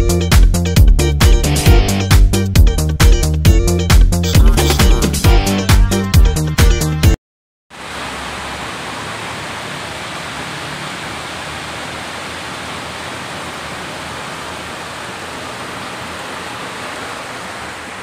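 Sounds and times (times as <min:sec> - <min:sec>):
heavy rain on metal roofs: 0:07.7 - 0:18.0.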